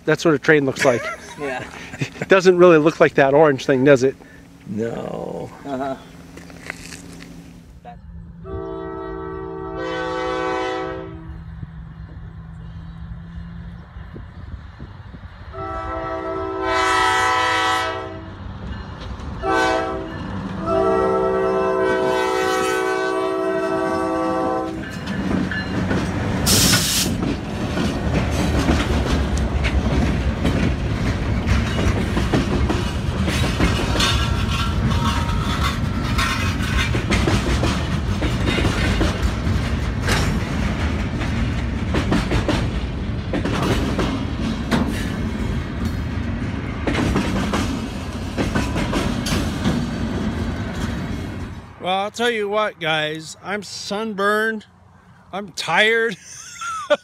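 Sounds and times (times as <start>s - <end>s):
diesel locomotive horn blasts: 7.9s - 11.5s, 15.5s - 18.4s, 19.4s - 24.9s
train wheels rumbling and clacking: 18.2s - 54.4s
brief air hiss: 26.5s - 27.2s.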